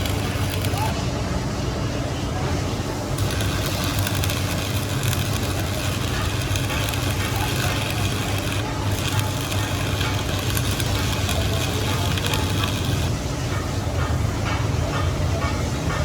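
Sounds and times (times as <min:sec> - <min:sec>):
machine running: 0:00.0 - 0:01.0, 0:03.1 - 0:13.3.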